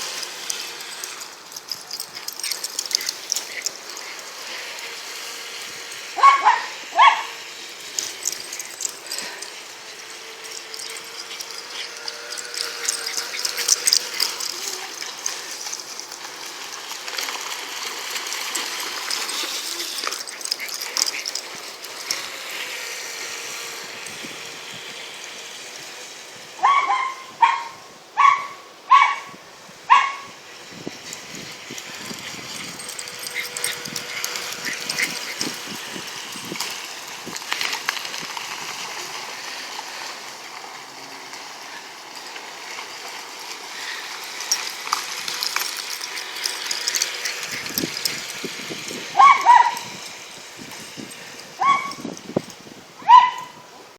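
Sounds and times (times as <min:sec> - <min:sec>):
dogs barking: 0:00.6 - 0:16.2, 0:26.6 - 0:29.3, 0:29.9 - 0:30.3, 0:32.0 - 0:36.5, 0:45.3 - 0:50.0, 0:51.6 - 0:52.0, 0:53.0 - 0:53.6.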